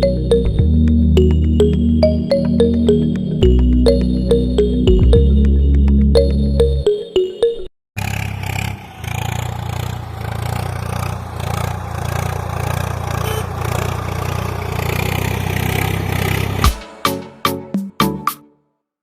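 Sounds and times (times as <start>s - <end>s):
engine idling fast: 8.0s - 16.7s.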